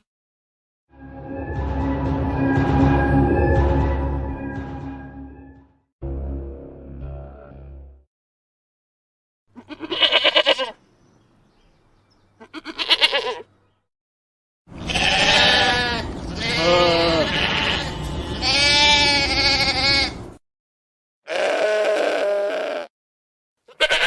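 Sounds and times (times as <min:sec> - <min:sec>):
sheep bleating: 0:09.6 - 0:10.8, 0:12.4 - 0:13.5, 0:14.7 - 0:20.2, 0:21.3 - 0:22.9, 0:23.6 - 0:24.0.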